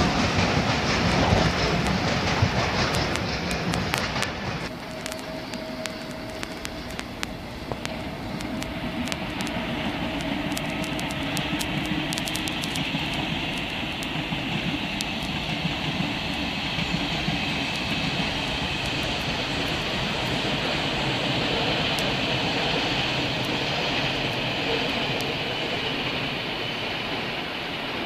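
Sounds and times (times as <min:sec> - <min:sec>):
high hiss: 0:00.0 - 0:28.0
train wheels rumbling on rails: 0:00.0 - 0:28.0
sharp clicks: 0:01.5 - 0:20.4.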